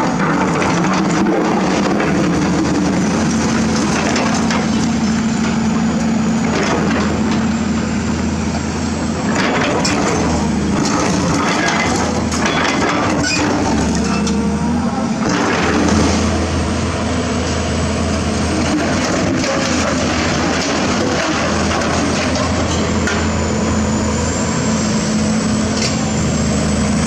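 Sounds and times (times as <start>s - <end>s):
cracking and grinding: 0.0s - 5.6s, 9.2s - 14.4s, 15.2s - 16.5s, 18.5s - 23.4s
diesel engine running: 0.0s - 27.0s.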